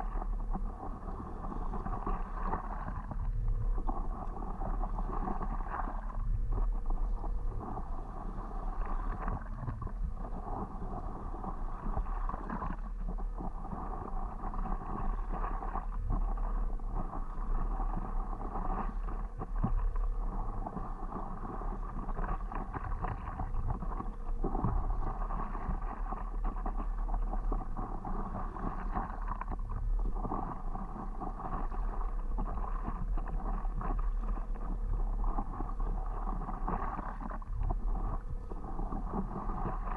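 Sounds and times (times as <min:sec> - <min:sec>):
wind rumbling on microphone: 0:00.0 - 0:39.9
water sloshing against paddleboard: 0:12.0 - 0:39.9.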